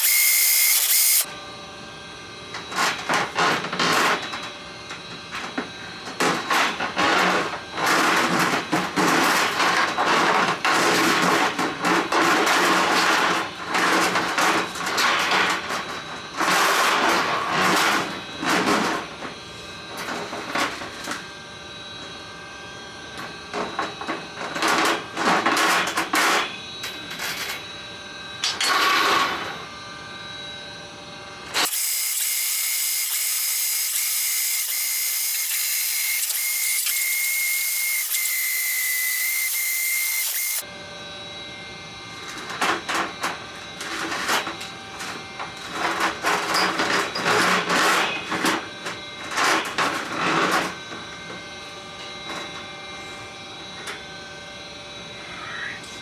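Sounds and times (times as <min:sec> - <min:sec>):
drain-cleaning machine whirring: 0:00.0 - 0:01.3, 0:31.5 - 0:40.7.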